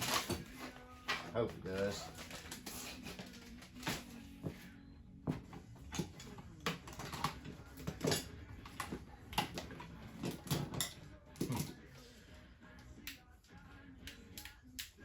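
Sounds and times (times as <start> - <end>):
hand tools clattering and clinking: 0.0 - 4.2, 5.3 - 11.8.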